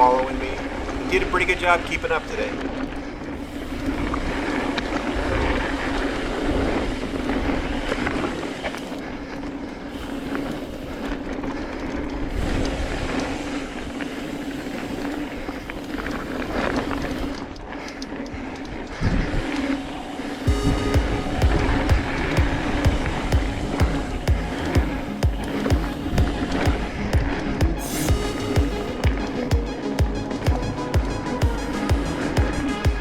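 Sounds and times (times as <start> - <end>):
bike rattling: 0.0 - 33.0
wind rumbling on microphone: 0.0 - 33.0
steady drone: 19.3 - 33.0.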